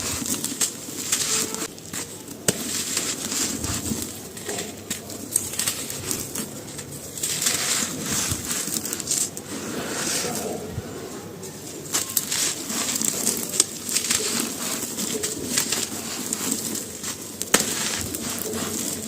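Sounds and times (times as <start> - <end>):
dry material crunching by hand: 0.0 - 19.0.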